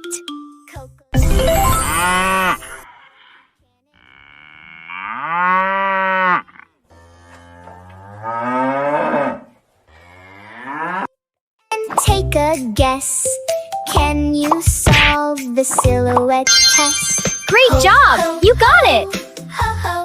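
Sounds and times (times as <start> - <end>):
cow mooing: 4.0 - 11.1.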